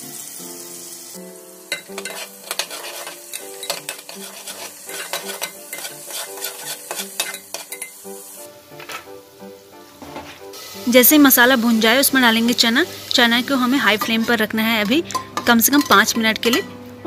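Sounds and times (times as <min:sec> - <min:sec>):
paste sizzling in hot oil: 0:00.0 - 0:16.7
metal ladle scraping pot: 0:01.7 - 0:08.0, 0:13.9 - 0:16.7.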